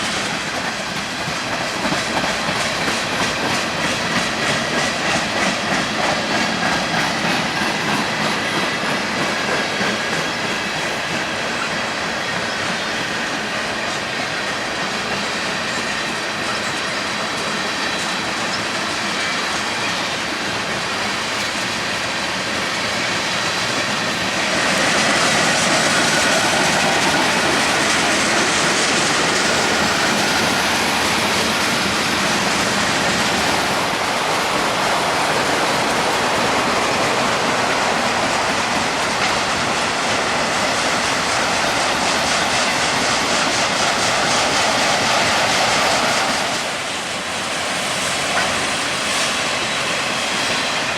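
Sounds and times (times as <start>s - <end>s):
train wheels clicking on rails: 0.0s - 50.9s.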